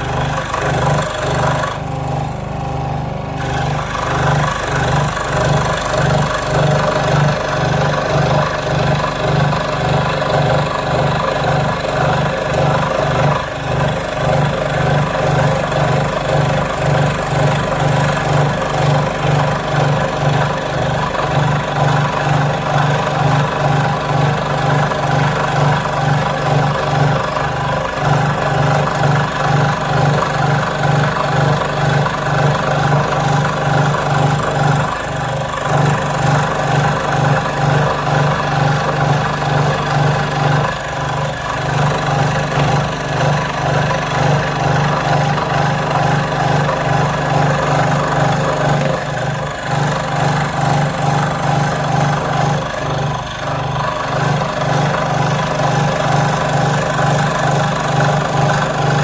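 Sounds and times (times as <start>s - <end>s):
power tool motor pulsing hum: 0.0s - 59.0s.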